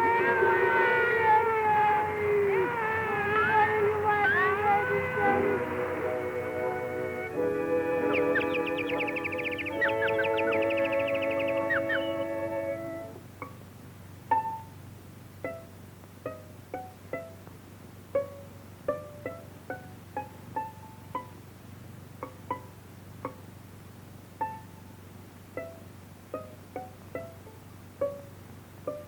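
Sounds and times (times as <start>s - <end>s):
plucked string notes: 0.0s - 21.4s, 22.1s - 23.5s, 24.4s - 29.0s
faint low hum: 0.0s - 29.0s.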